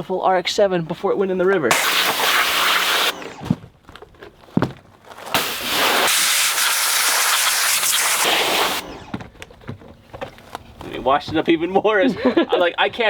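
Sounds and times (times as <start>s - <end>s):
pressure washer spraying water: 1.7s - 3.5s, 5.4s - 9.2s.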